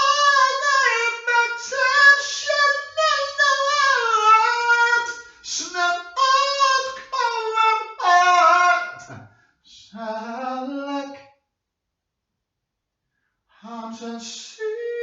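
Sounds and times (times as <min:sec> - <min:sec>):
high voice singing: 0:00.0 - 0:10.1.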